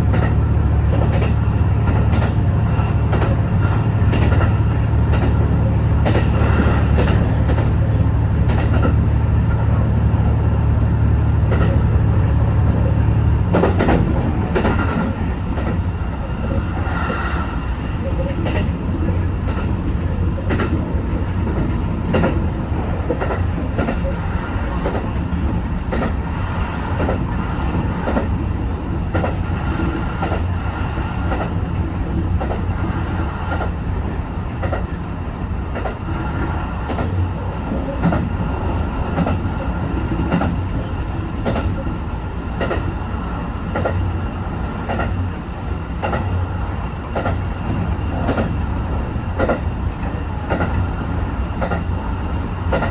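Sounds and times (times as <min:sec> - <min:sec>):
railcar running at speed: 0:00.0 - 0:52.9
wheels clicking over rail joints: 0:17.9 - 0:38.3.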